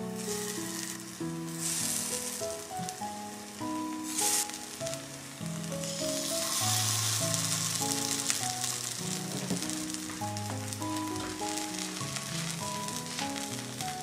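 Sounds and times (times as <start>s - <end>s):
background music: 0.0s - 14.0s
patties sizzling in oil: 0.0s - 14.0s.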